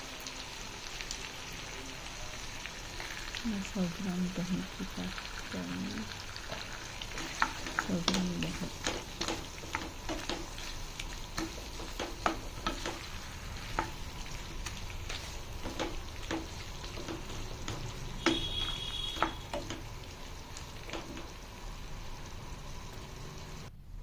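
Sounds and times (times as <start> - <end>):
food sizzling in a pan: 0.0 - 23.8
spoon scraping a pan: 6.1 - 19.9.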